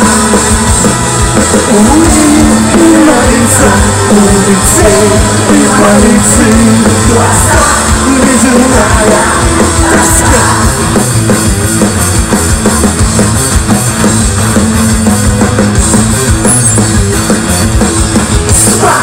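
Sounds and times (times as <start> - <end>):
drum kit beating: 0.0 - 19.0
rock band playing: 0.0 - 19.0.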